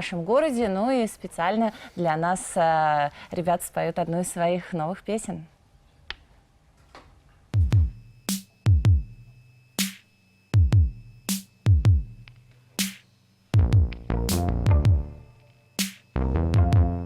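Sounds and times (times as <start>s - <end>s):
drum machine kick drums: 7.5s - 10.0s, 10.6s - 13.0s, 13.6s - 17.0s
synth sound: 13.6s - 15.4s.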